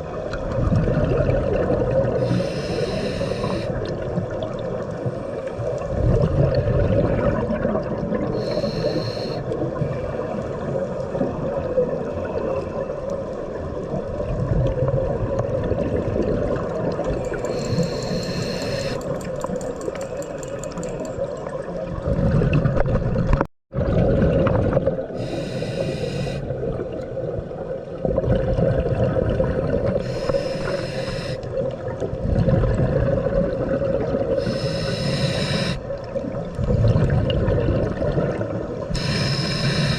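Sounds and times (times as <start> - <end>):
exhaled bubbles rushing: 0.4 - 2.2, 5.8 - 8.4, 21.8 - 25.2, 26.5 - 30.8, 31.5 - 34.5, 35.6 - 39.9
diver breathing through regulator: 2.2 - 3.8, 8.4 - 10.3, 17.3 - 19.1, 25.2 - 26.5, 30.0 - 31.5, 34.4 - 35.8, 39.0 - 39.9.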